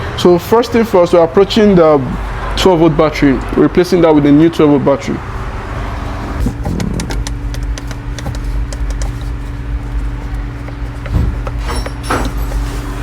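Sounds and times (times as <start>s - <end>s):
low machine hum: 0.0s - 13.0s
light clicks and knocks: 6.5s - 12.3s.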